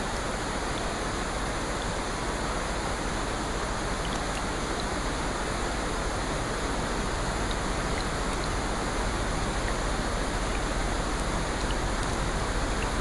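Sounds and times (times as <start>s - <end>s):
steady rainfall hiss: 0.0s - 13.0s
faint raindrop ticks: 3.2s - 5.2s, 6.6s - 13.0s.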